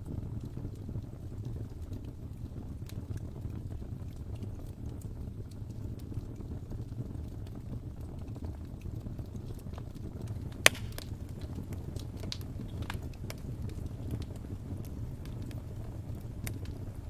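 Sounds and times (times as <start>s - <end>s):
fire crackling in fireplace: 0.0s - 17.0s
low rumble of burning: 0.0s - 17.0s
sharp loud pop: 10.7s - 11.0s.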